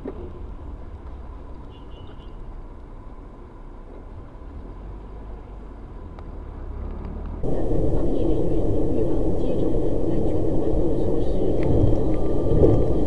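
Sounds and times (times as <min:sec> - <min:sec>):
car interior low rumble: 0:07.4 - 0:13.0
faint steady whine: 0:07.4 - 0:13.0
loud rushing noise: 0:07.4 - 0:13.0.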